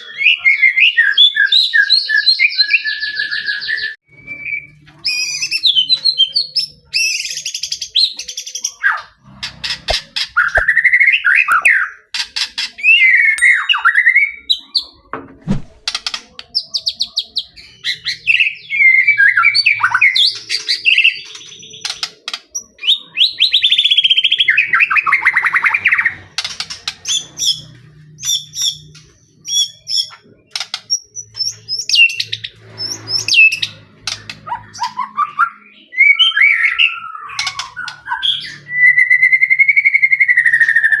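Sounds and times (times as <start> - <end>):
songbird singing whistled phrases: 0.0 - 9.1, 16.6 - 26.1, 34.5 - 41.0.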